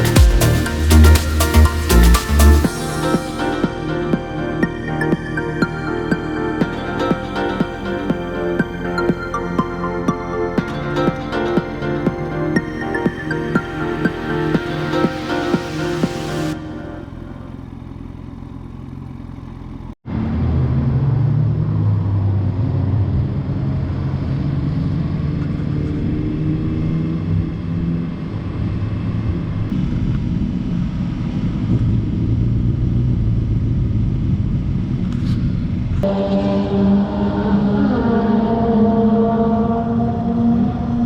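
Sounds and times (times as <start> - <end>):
motorcycle engine running: 11.7 - 20.0.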